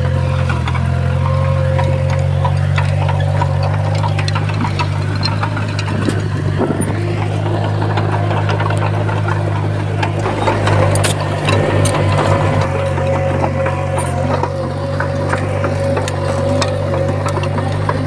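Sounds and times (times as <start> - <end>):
bulldozer diesel engine droning: 0.0 - 18.0
sharp clicks and knocks: 1.4 - 18.0.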